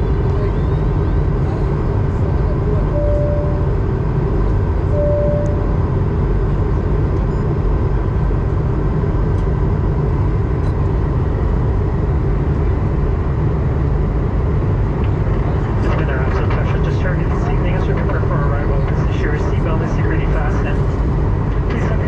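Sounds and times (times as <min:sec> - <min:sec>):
airplane cabin roar: 0:00.0 - 0:22.0
faint steady whine: 0:00.0 - 0:22.0
short beep: 0:02.9 - 0:03.7, 0:04.9 - 0:05.8.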